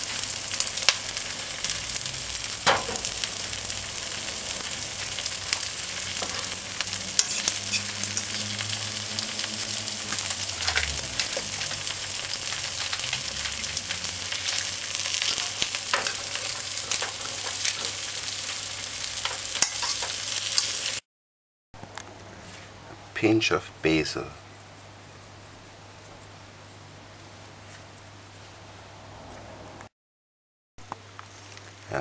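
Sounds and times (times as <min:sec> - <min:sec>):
food sizzling in hot oil: 0:00.0 - 0:21.0
oil crackling and popping: 0:00.0 - 0:21.0, 0:30.8 - 0:32.0.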